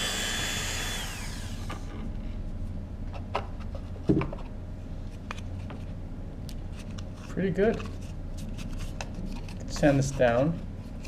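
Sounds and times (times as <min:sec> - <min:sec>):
rotary tool whining: 0:00.0 - 0:02.0.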